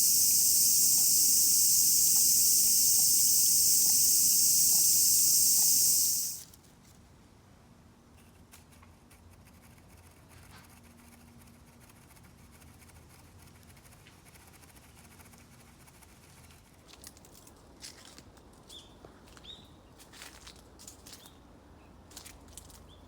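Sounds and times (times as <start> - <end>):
sharp ticks: 0.0 - 6.4.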